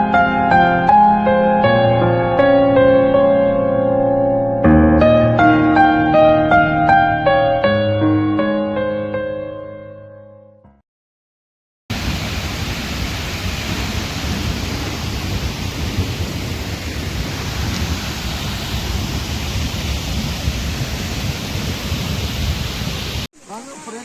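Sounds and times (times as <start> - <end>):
piano music: 0.0 - 10.8
heavy rain pouring: 11.9 - 24.0.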